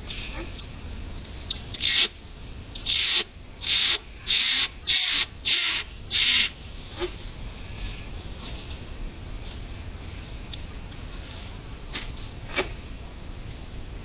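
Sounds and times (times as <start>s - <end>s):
coucal harsh hisses: 2.8s - 7.2s.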